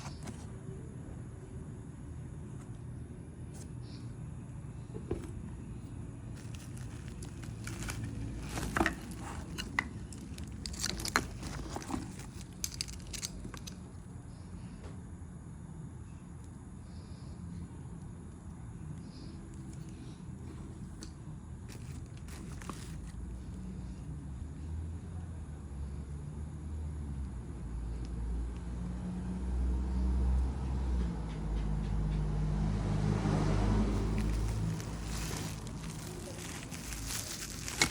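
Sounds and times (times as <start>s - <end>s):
low steady hum: 0.0s - 26.1s
packaging crinkling and rustling: 6.4s - 14.0s, 21.7s - 23.5s, 33.9s - 37.9s
engine droning at low speed: 16.8s - 37.9s.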